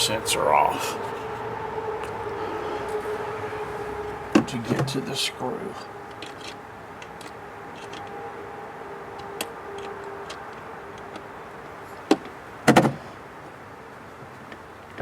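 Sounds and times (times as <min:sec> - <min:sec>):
faint steady hum: 0:00.0 - 0:15.0
hand tools clicking and knocking: 0:06.1 - 0:08.1.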